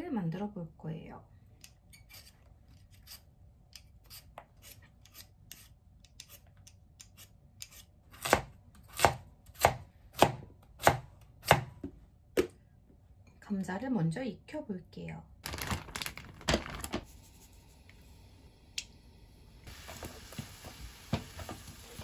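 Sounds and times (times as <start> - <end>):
peeler scraping potato: 1.9 - 9.7
knife chopping on cutting board: 7.6 - 11.9.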